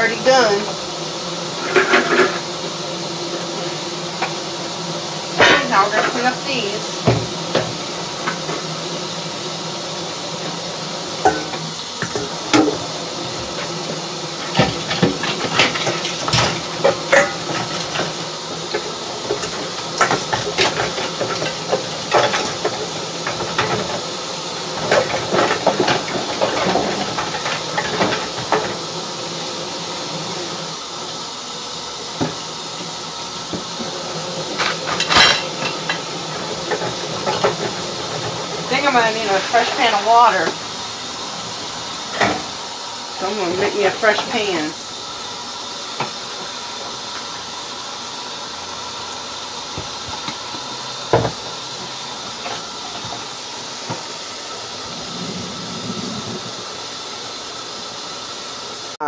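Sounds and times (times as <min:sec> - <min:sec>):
steady hiss: 0:00.0 - 0:59.0
dishes and pans clinking: 0:01.6 - 0:02.4, 0:05.4 - 0:06.3, 0:11.2 - 0:12.8, 0:14.4 - 0:24.0, 0:34.5 - 0:40.6.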